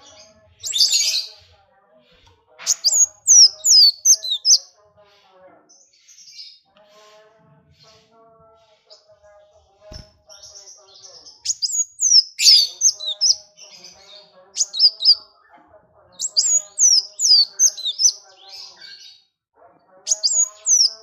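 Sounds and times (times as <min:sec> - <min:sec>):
faint low broken chatter: 0:00.0 - 0:21.0
songbird whistled notes: 0:11.5 - 0:13.4.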